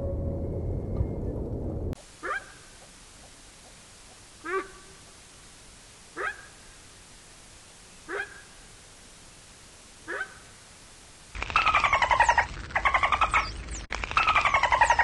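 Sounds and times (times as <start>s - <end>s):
dolphin pulsed squawking: 2.2s - 2.7s, 6.2s - 6.5s, 10.1s - 10.4s.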